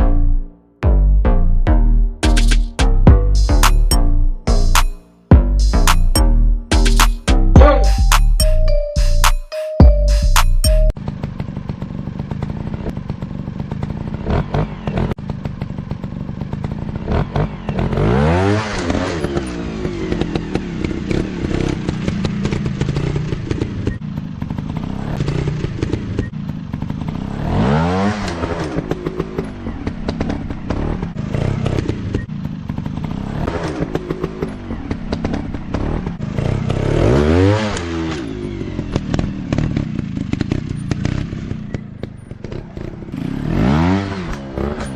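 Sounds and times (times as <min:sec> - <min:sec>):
dirt bike engine revving: 0:11.0 - 0:44.9.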